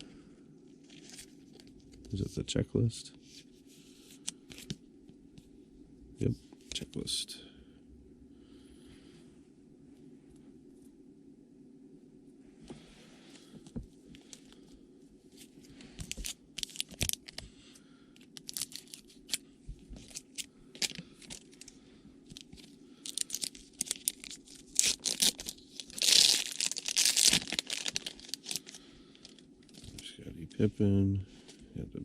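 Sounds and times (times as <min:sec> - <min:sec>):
foil wrapper crinkling and tearing: 0:16.0 - 0:17.5, 0:18.2 - 0:19.4, 0:20.0 - 0:30.1.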